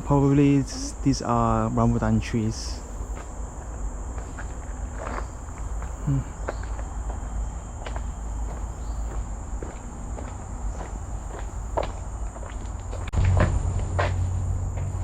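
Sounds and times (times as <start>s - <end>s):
insects droning: 0.0s - 15.0s
footsteps crunching on leaves: 3.0s - 15.0s.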